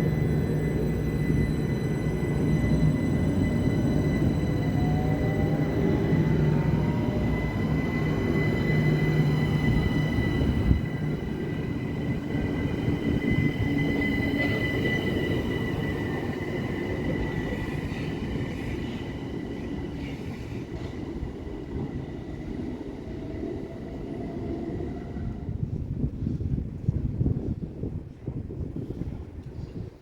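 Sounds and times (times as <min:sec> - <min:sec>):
train high whine: 0:00.0 - 0:26.4
train wheels rumbling on rail: 0:00.0 - 0:29.7.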